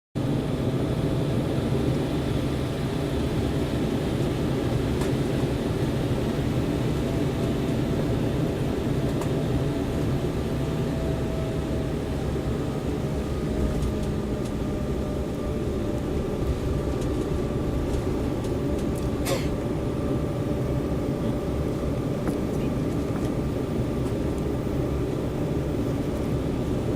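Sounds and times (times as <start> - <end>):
airliner cabin rush: 11.8 - 26.9.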